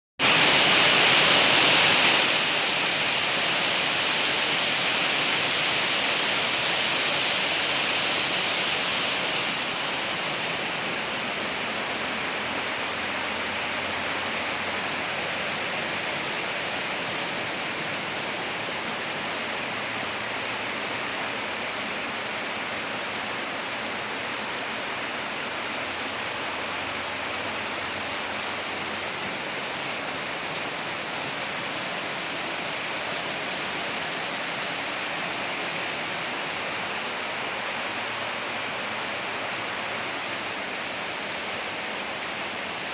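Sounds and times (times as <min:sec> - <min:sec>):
torrential rain: 0:00.2 - 0:42.9.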